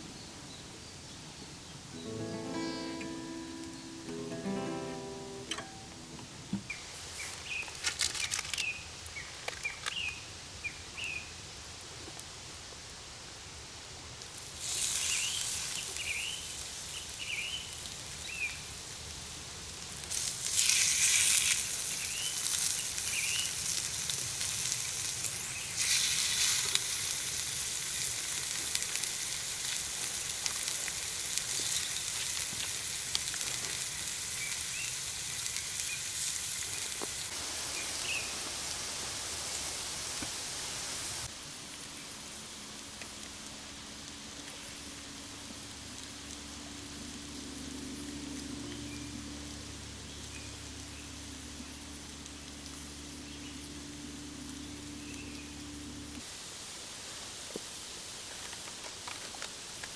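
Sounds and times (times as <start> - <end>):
steak sizzling over fire: 2.0 - 6.1, 14.2 - 44.8.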